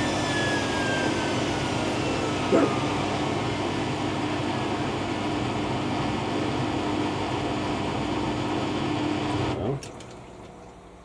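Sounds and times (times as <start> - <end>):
washer dryer spinning: 0.0 - 8.1.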